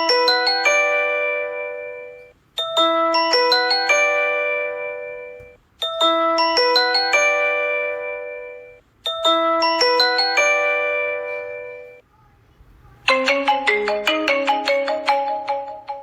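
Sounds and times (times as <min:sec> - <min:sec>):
chime-like ringtone: 0:00.0 - 0:12.0, 0:13.1 - 0:16.0
marimba-like ringtone melody: 0:00.0 - 0:12.0, 0:13.1 - 0:16.0.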